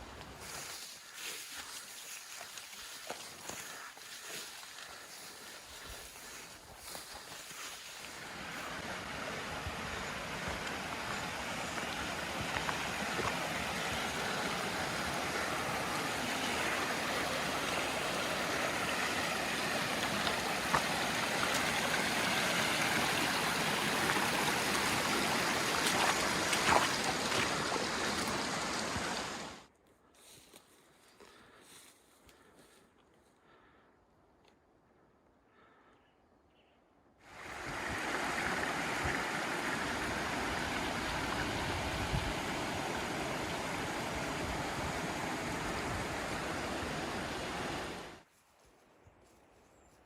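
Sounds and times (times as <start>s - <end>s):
water flowing over rocks: 7.6s - 29.7s, 37.3s - 48.2s.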